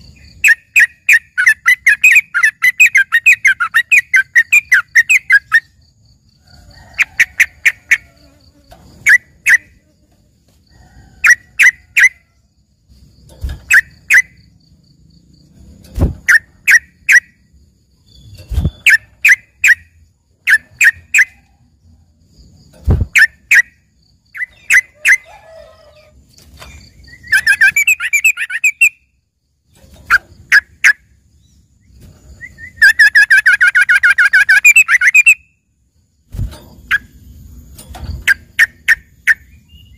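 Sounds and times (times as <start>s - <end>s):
bird chattering trill: 0.0s - 5.8s, 9.0s - 9.8s, 18.6s - 21.4s, 23.2s - 25.6s, 27.0s - 29.1s, 32.4s - 35.4s.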